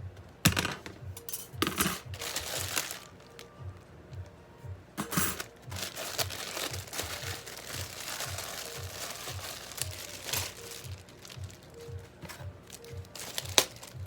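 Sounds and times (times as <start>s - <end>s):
packaging crinkling: 2.0s - 3.6s, 5.2s - 14.0s.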